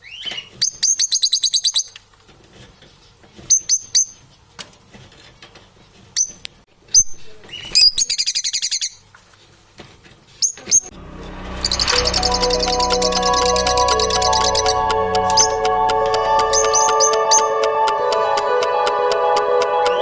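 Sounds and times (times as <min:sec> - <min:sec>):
parrots chirping: 0:11.6 - 0:17.7.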